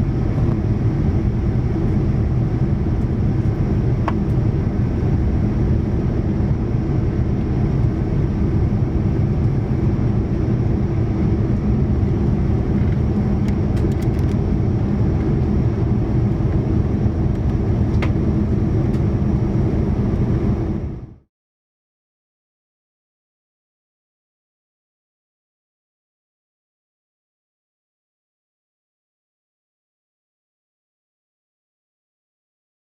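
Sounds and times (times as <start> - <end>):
airplane cabin engine drone: 0.0 - 21.3.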